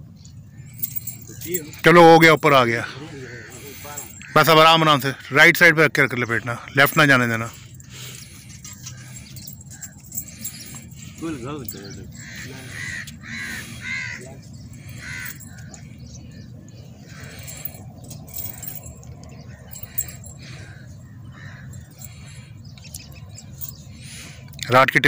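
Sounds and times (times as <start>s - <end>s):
bird cawing: 2.8s - 5.4s, 7.5s - 24.5s.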